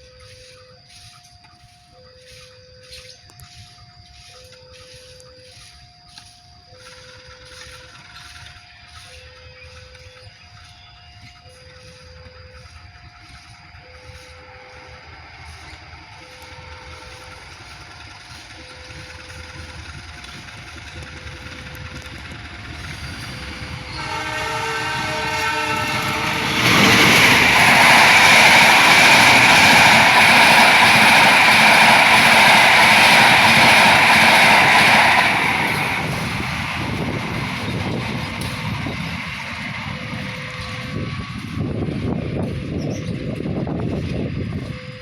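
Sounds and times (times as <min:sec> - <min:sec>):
passenger train passing: 0:00.0 - 0:45.0
two-tone warning signal: 0:00.0 - 0:45.0
train horn: 0:22.8 - 0:31.6.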